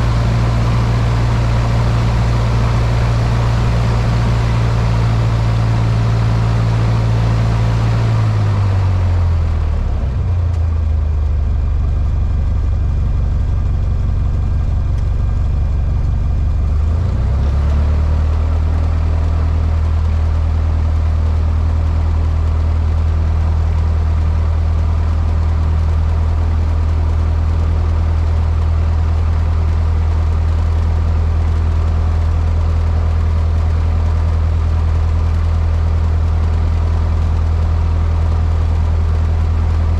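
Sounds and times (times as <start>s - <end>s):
light aircraft piston engine: 0.0s - 8.6s.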